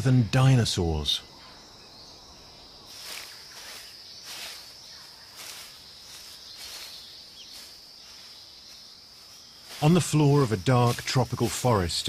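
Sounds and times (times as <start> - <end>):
high-pitched insect drone: 0.0 - 12.0
rustles in leaf litter: 2.9 - 12.0.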